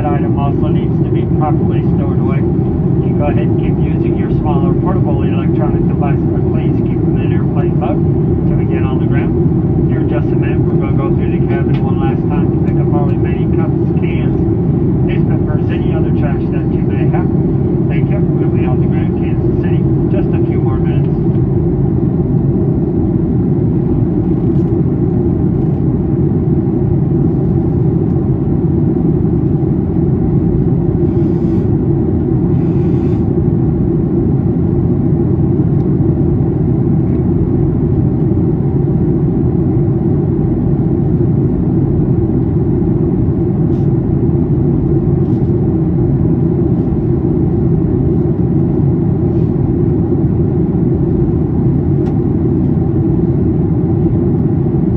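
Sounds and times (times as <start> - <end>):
airplane cabin roar: 0.0 - 54.9.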